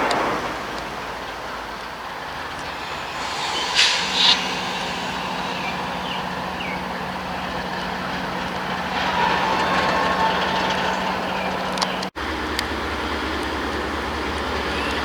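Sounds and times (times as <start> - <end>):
train cars rumbling: 2.0 - 15.0
low engine drone: 2.3 - 12.1
loud burst: 2.5 - 7.4
faint high tone: 2.6 - 7.1.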